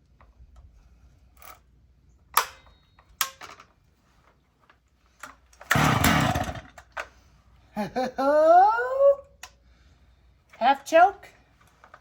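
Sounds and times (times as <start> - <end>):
chainsaw handling clicks and knocks: 2.3 - 3.8, 4.6 - 7.2
recoil starter cord pull: 5.5 - 7.1.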